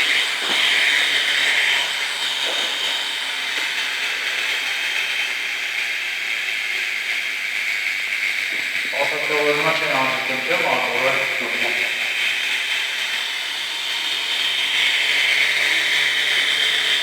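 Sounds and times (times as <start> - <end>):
helicopter whine: 8.4 - 12.5.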